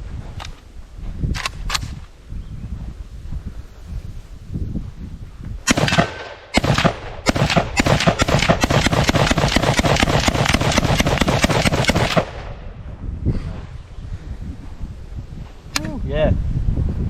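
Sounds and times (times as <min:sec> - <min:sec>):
rifle shots: 0:05.7 - 0:12.8.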